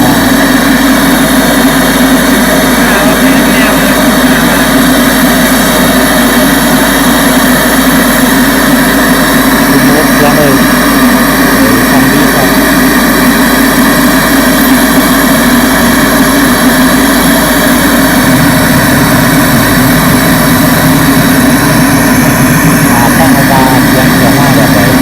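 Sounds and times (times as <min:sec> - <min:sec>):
loud sound system drone: 0:00.0 - 0:25.0.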